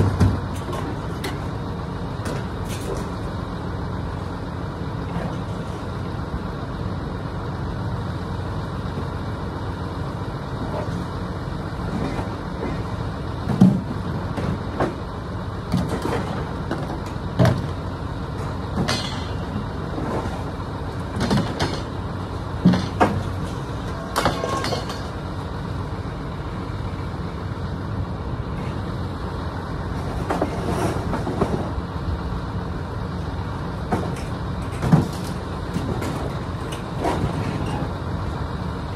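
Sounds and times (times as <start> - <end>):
sharp clanks and knocks: 0.0 - 1.6, 2.2 - 3.2, 11.9 - 15.0, 15.7 - 17.8, 18.4 - 25.3, 30.1 - 31.8, 33.8 - 38.0
motor vehicle running: 0.0 - 38.9.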